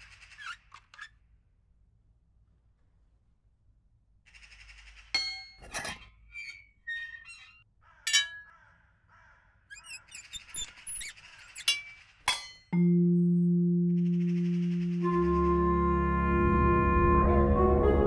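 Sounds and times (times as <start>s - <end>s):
squeaky chirps: 0.0s - 1.2s, 5.7s - 8.6s, 9.6s - 12.7s
metallic ringing clangs: 5.2s - 6.0s, 8.1s - 8.5s, 11.6s - 12.8s.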